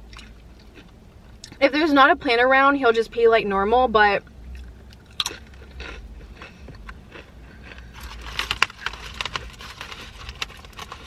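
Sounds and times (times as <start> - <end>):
crunching tortilla chip: 5.1 - 11.0
foil wrapper crackling: 7.9 - 11.0.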